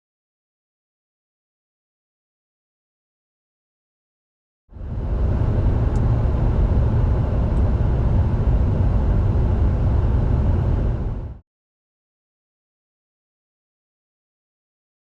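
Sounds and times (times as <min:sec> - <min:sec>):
car driving rumble: 0:04.8 - 0:11.4.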